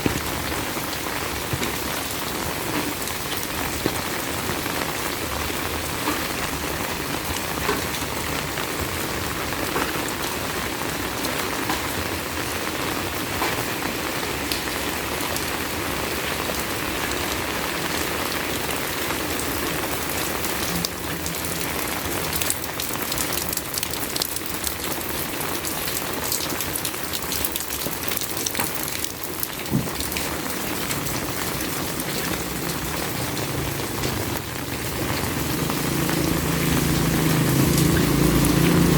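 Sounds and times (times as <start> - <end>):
heavy rain falling: 0.0 - 38.9
sharp rain drop ticks: 19.2 - 38.9.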